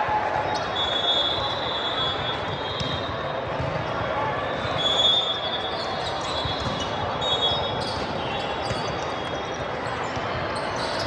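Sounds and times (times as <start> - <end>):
indistinct crowd noise: 0.0 - 11.0
sneakers squeaking: 0.5 - 3.8, 4.6 - 11.0
balls thudding on court floor: 2.5 - 3.9, 6.4 - 7.0.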